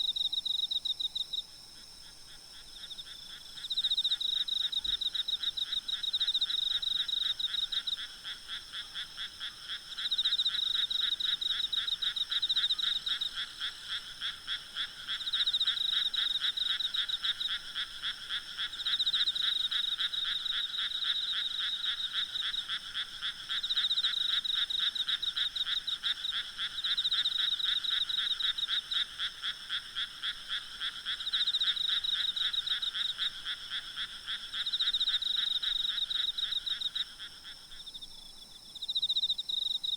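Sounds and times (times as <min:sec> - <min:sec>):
frogs croaking in chorus: 0:00.0 - 0:39.9
insects trilling: 0:00.0 - 0:39.9.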